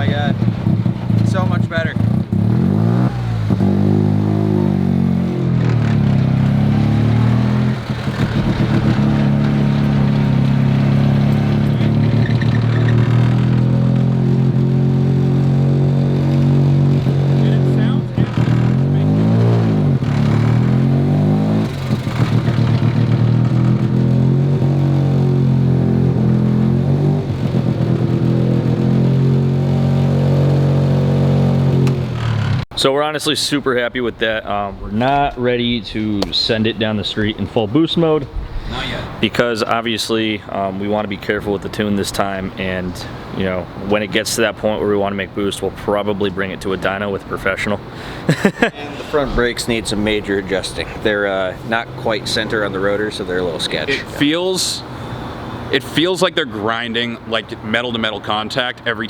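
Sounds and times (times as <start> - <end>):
rotary car engine running: 0.0 - 32.7, 44.6 - 55.8
rotary engine running: 5.7 - 13.7.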